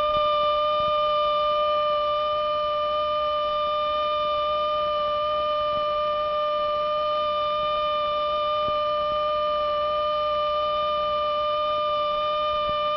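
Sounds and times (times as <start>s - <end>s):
steady pitched tone: 0.0s - 2.9s.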